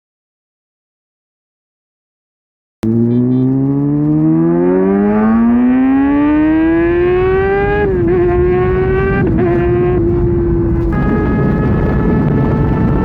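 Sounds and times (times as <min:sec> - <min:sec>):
motorcycle engine accelerating: 0:02.8 - 0:13.0.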